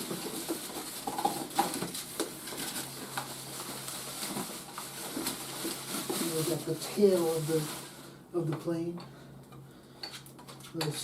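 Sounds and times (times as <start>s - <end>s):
packaging rustling: 0.0s - 8.1s.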